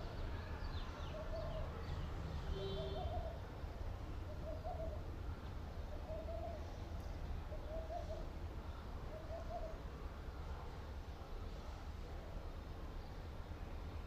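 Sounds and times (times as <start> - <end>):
bird low hooting call: 2.5 - 3.4, 4.3 - 5.0, 6.0 - 6.7, 9.1 - 9.8.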